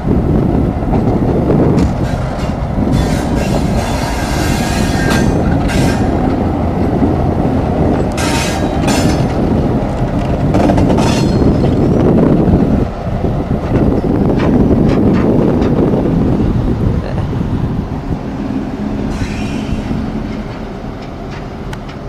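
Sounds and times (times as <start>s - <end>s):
train rumbling on rails: 0.0s - 22.0s
high-pitched wheel squeal: 19.1s - 20.0s.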